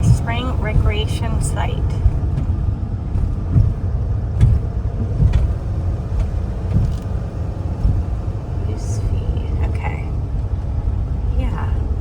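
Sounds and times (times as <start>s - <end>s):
vehicle engine and tyres rumbling: 0.0s - 12.0s.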